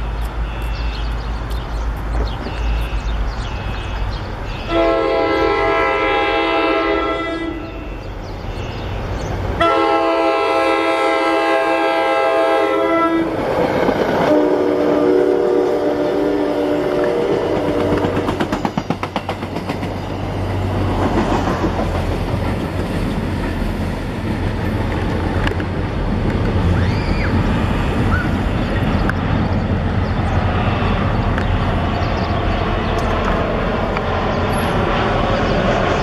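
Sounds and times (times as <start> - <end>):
train rumbling past: 0.0 - 36.0
train horn: 4.6 - 8.1, 9.6 - 13.4, 14.2 - 18.2
wheels clicking over rail joints: 17.0 - 26.9.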